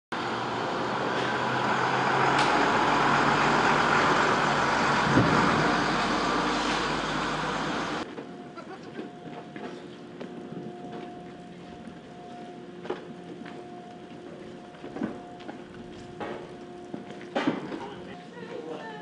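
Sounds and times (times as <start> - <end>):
low engine hum: 0.1 - 18.7
vehicle rushing noise: 0.2 - 8.0.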